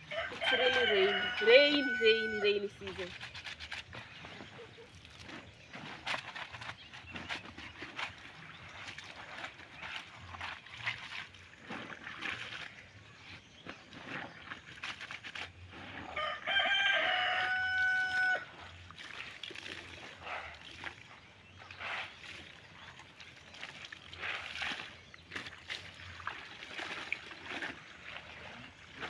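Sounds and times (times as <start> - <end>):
rooster crowing: 0.0 - 2.8, 16.2 - 18.5.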